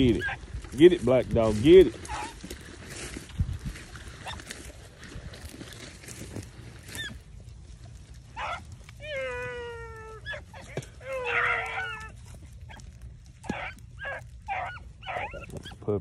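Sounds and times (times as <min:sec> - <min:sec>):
dogs baying: 0:00.0 - 0:00.9, 0:01.6 - 0:02.8, 0:04.1 - 0:04.7, 0:06.8 - 0:07.4, 0:08.2 - 0:16.0.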